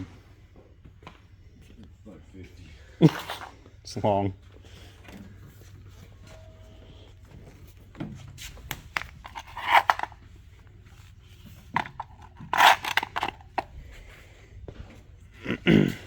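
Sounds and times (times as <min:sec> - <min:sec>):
scraping rustles: 0:04.7 - 0:10.2, 0:10.9 - 0:14.4
gear being handled: 0:08.7 - 0:10.2, 0:11.6 - 0:13.7.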